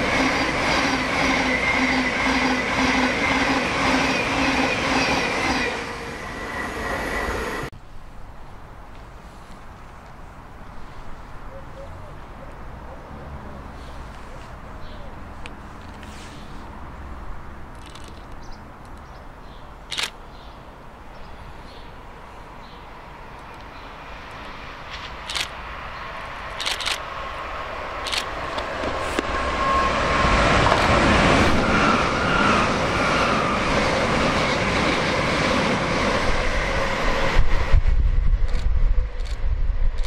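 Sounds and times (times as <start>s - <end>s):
deep train rumble: 0.0s - 8.8s, 20.8s - 40.0s
train wheel-on-rail noise: 0.0s - 11.4s, 13.5s - 19.1s, 19.9s - 40.0s
sharp clicks: 17.8s - 19.1s, 19.9s - 20.2s, 24.9s - 25.6s, 26.5s - 27.0s.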